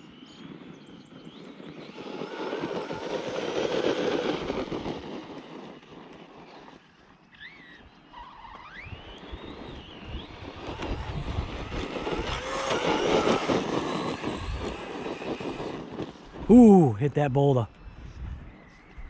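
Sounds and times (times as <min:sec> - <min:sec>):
toy truck motor whine: 0:01.7 - 0:16.1.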